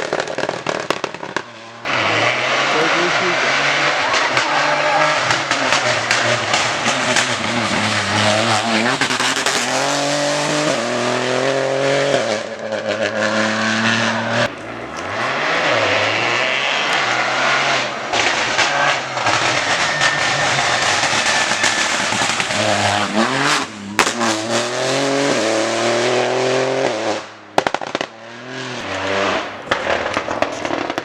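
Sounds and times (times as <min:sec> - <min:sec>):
sharp crackles: 0:00.0 - 0:01.8, 0:28.8 - 0:31.0
rally car engine at full throttle: 0:00.0 - 0:31.0.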